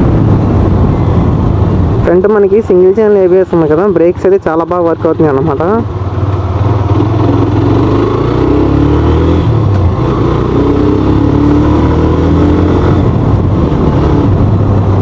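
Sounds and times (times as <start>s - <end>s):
motorcycle engine running: 4.7s - 15.0s.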